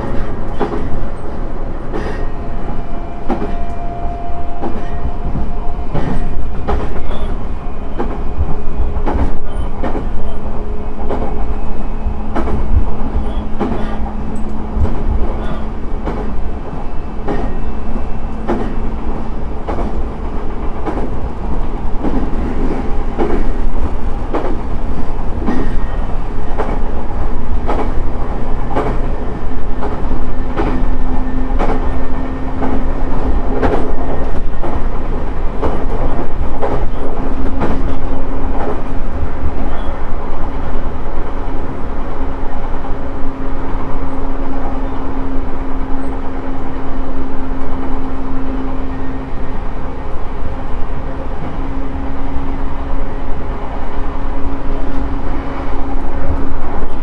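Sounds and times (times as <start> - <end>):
wheels clicking over rail joints: 0.0 - 2.4, 4.6 - 11.6, 12.2 - 40.1
train running rumble: 0.0 - 57.0.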